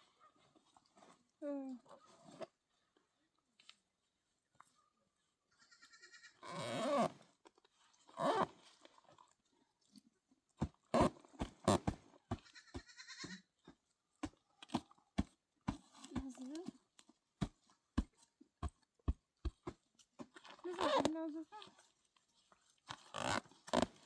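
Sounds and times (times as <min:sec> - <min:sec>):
goats bleating: 0:05.6 - 0:06.4, 0:12.4 - 0:13.4.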